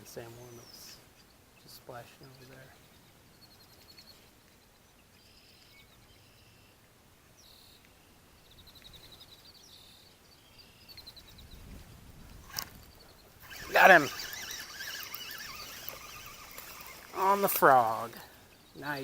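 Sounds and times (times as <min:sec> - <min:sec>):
outdoor background hiss: 0:00.0 - 0:19.0
songbirds chirping and trilling: 0:00.0 - 0:19.0.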